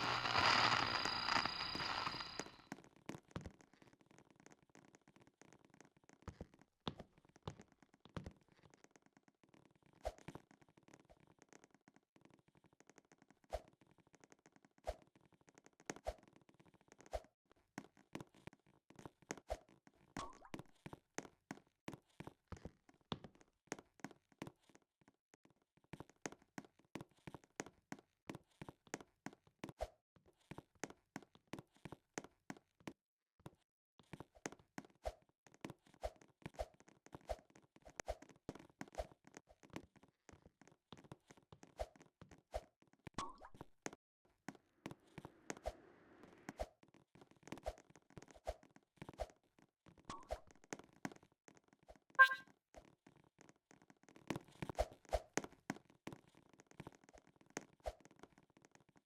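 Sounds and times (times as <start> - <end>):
faint irregular clicks and taps: 3.1 - 16.0.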